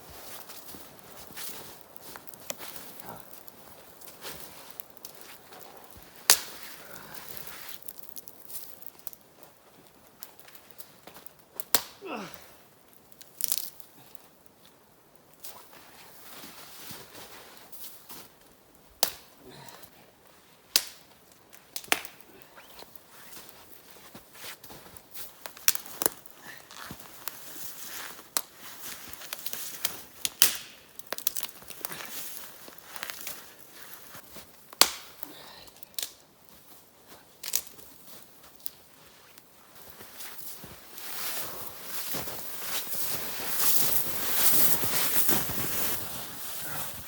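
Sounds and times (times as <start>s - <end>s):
crackling and rustling: 0.0s - 11.9s, 37.4s - 47.0s
branches snapping: 1.3s - 9.2s, 10.5s - 12.2s, 13.2s - 13.8s, 21.8s - 22.2s, 29.1s - 33.4s, 34.7s - 36.2s, 37.4s - 37.8s
wood branches cracking: 6.3s - 9.2s, 30.2s - 32.1s
branches rustling: 37.4s - 47.0s.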